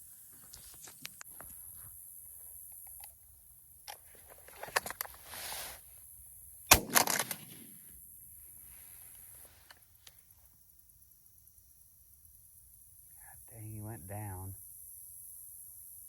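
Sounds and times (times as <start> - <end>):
rustle of handling: 4.0 - 5.9
shotgun shot: 6.7 - 7.9.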